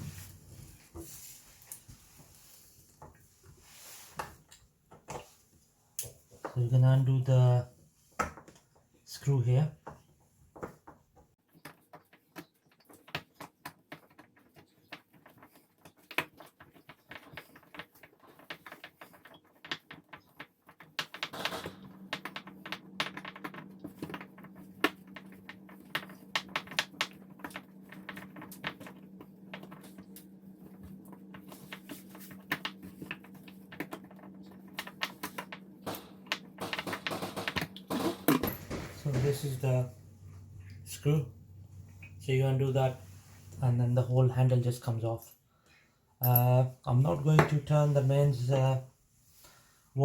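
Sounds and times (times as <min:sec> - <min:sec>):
steady low hum: 0:27.2 - 0:45.6.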